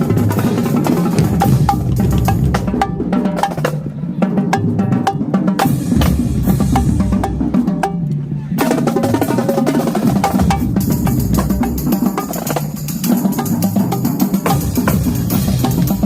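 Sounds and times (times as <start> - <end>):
snare drums: 0.0 - 3.8, 4.4 - 16.0
bass drums: 0.0 - 16.0
tenor drums: 0.0 - 16.0.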